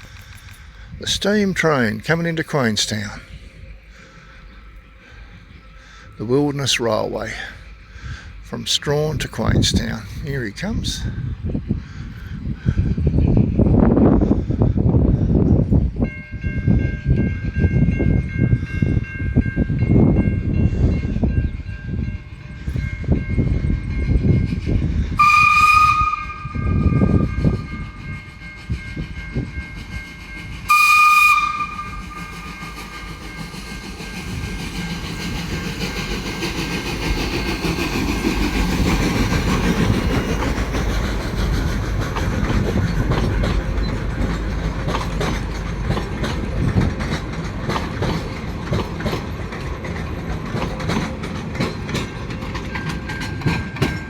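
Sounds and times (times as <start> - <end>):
steam locomotive chuffing: 0.0 - 15.7, 16.3 - 54.0
steam hissing: 24.5 - 46.6
train whistle blasts: 25.2 - 28.0, 30.6 - 32.7
wheels clattering over rails: 28.7 - 54.0.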